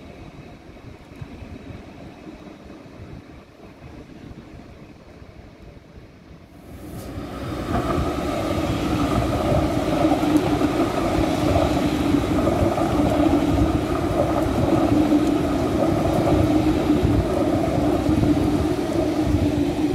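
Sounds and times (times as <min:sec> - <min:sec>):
train wheels rolling on rail: 0:00.0 - 0:19.9
droning hum: 0:06.7 - 0:19.9.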